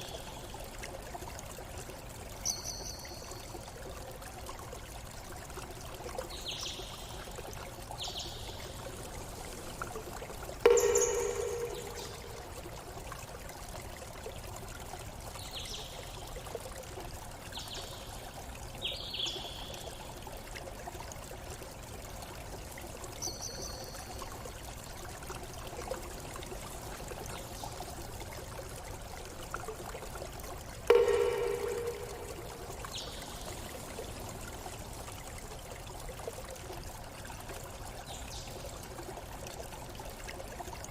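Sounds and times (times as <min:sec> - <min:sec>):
stream running: 0:00.0 - 0:40.9
low ringing tone: 0:10.6 - 0:12.7, 0:30.9 - 0:33.4.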